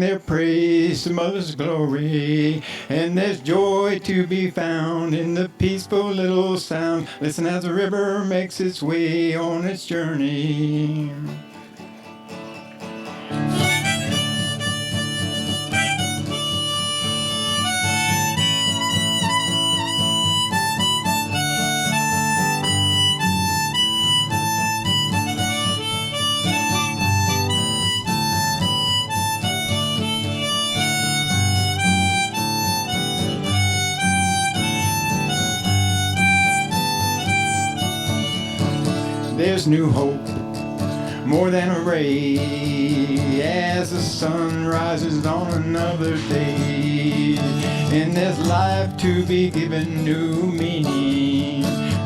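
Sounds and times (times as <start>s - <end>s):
acoustic guitar strumming: 0.0s - 52.0s
harmonica melody: 11.0s - 52.0s.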